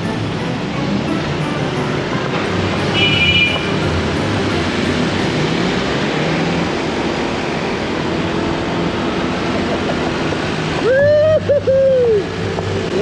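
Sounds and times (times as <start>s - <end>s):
short high-pitched beep: 0.0s - 5.7s
scooter engine and road noise: 0.0s - 13.0s.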